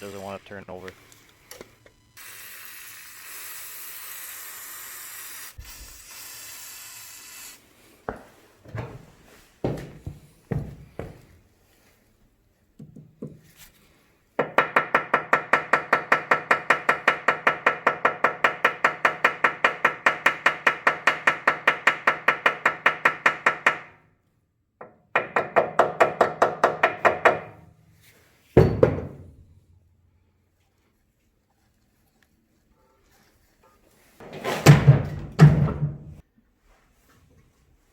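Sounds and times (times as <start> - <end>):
heavy thud: 28.6 - 29.4, 34.2 - 36.2.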